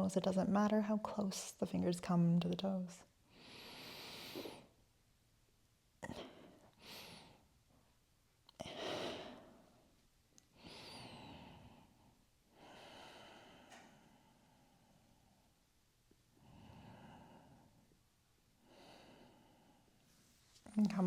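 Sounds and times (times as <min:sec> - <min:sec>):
woman breathing deeply: 0:03.3 - 0:04.8, 0:06.0 - 0:07.5, 0:08.6 - 0:09.9, 0:10.5 - 0:15.6, 0:16.3 - 0:17.9, 0:18.6 - 0:20.0.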